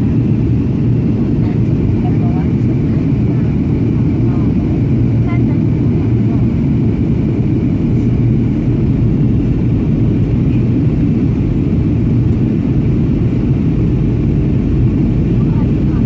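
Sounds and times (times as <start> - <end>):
aircraft cabin rumble: 0.0 - 16.0
constant low hum: 0.0 - 16.0.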